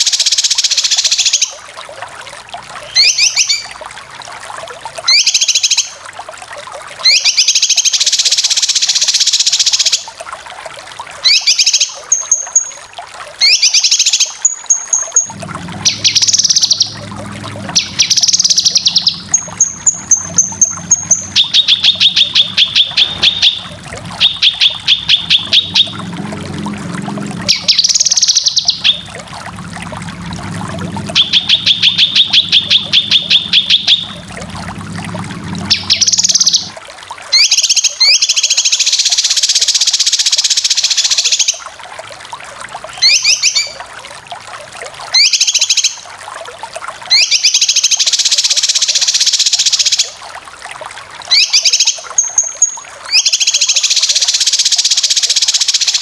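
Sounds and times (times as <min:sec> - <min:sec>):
bulbul trilling and chattering: 0:00.0 - 0:01.6, 0:02.8 - 0:03.8, 0:05.1 - 0:06.0, 0:07.0 - 0:10.1, 0:11.2 - 0:12.8, 0:13.4 - 0:41.6, 0:43.0 - 0:43.8, 0:45.1 - 0:46.0, 0:47.1 - 0:50.2, 0:51.3 - 0:56.0
low hum: 0:15.2 - 0:36.8.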